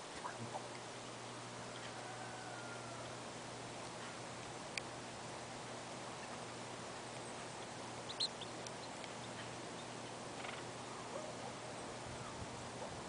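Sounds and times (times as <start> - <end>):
high bird chirps: 8.1 - 10.6.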